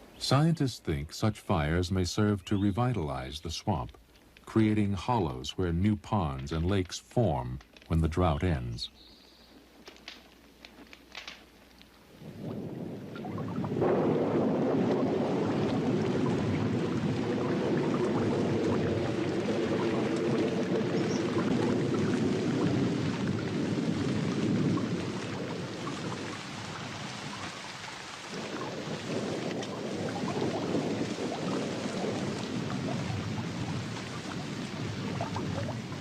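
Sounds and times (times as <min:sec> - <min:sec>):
thunder rumbling: 0:12.2 - 0:36.0
heavy rain falling: 0:13.7 - 0:36.0.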